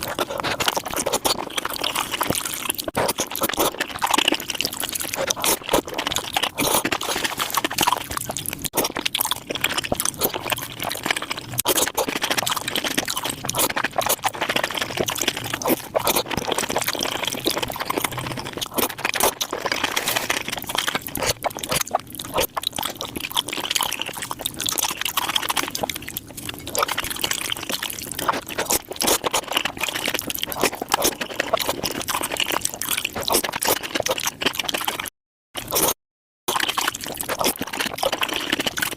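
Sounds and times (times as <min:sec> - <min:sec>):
wet chewing and slurping: 0:00.0 - 0:38.9.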